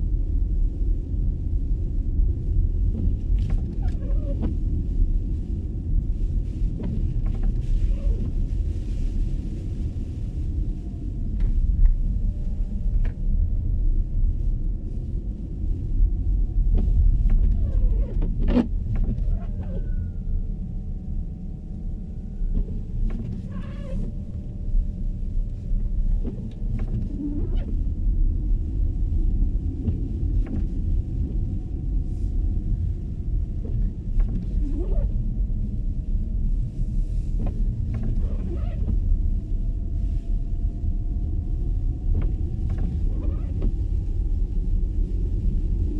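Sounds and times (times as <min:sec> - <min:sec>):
road and tyre noise: 0:00.0 - 0:45.9
faint clicks and creaks: 0:22.2 - 0:27.9, 0:36.6 - 0:45.9.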